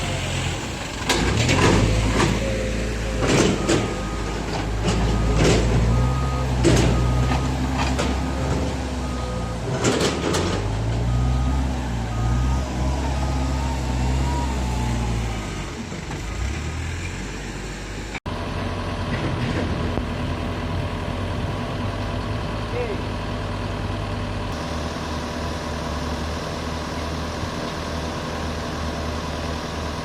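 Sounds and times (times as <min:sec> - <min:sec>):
heavy diesel machinery running: 0:00.0 - 0:30.0
reversing alarm beeping: 0:03.5 - 0:15.2.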